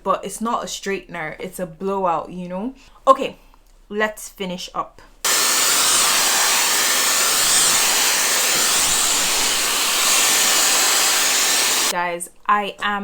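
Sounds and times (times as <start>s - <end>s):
hair dryer blowing: 5.3s - 12.0s.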